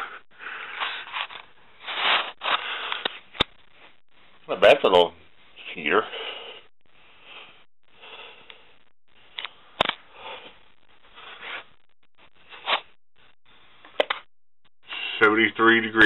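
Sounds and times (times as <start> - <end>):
person breathing and sniffing: 0.0 - 3.3, 6.1 - 8.8, 10.0 - 11.8.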